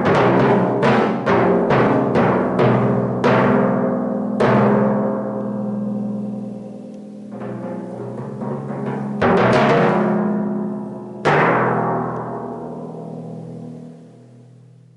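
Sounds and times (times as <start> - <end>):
timpani strokes: 6.1 - 14.4.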